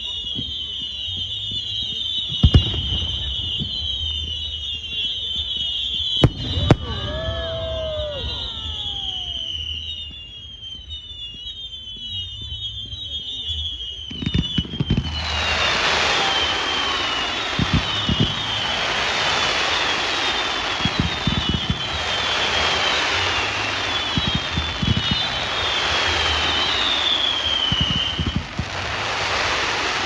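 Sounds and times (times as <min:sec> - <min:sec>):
firework whistles: 0:00.0 - 0:30.0
firework bangs: 0:01.9 - 0:05.2, 0:06.2 - 0:10.9, 0:14.2 - 0:30.0
firework crackling: 0:06.2 - 0:10.2, 0:14.6 - 0:30.0.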